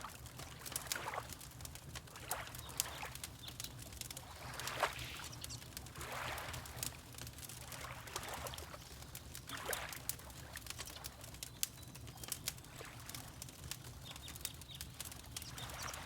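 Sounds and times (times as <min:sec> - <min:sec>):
water lapping: 0:00.0 - 0:03.2, 0:04.0 - 0:11.0
wood fire crackling: 0:00.0 - 0:16.0.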